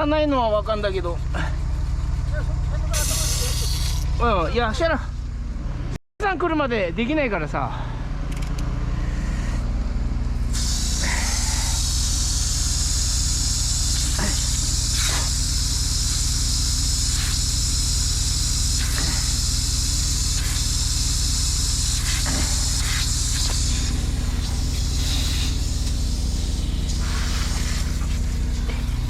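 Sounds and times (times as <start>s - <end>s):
engine idling: 0.0s - 29.0s
water hissing from leak: 2.9s - 4.0s, 10.5s - 28.8s.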